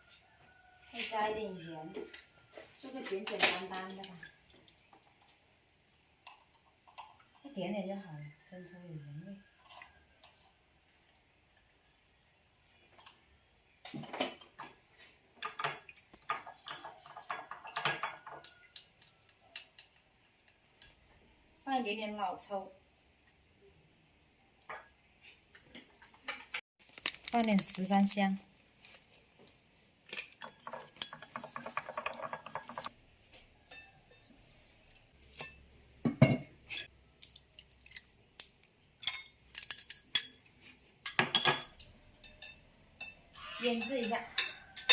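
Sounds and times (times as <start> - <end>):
utensil scraping small bowl: 30.4 - 32.9
meat squishing in sauce: 37.2 - 38.8.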